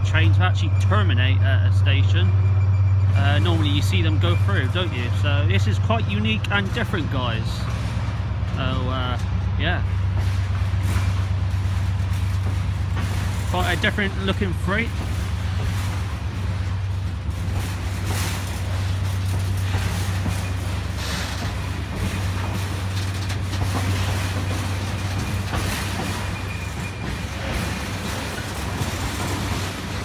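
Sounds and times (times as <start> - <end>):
locomotive engine droning: 0.0 - 30.0
knocks from moving train: 9.2 - 30.0.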